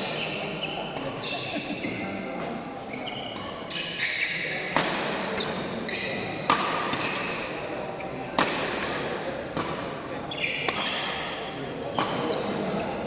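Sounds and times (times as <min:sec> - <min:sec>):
shoes squeaking on court: 0:00.0 - 0:02.2, 0:02.9 - 0:04.5, 0:10.3 - 0:13.0
racket hitting shuttlecock: 0:04.7 - 0:07.5, 0:08.3 - 0:12.5.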